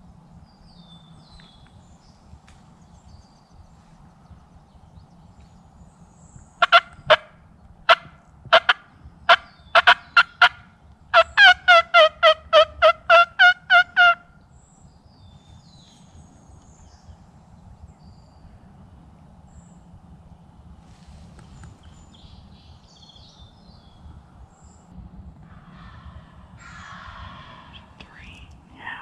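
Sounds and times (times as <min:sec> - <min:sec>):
turkey clucking: 0:06.6 - 0:07.3, 0:07.9 - 0:14.2
turkey yelping: 0:06.6 - 0:07.3, 0:07.9 - 0:14.2.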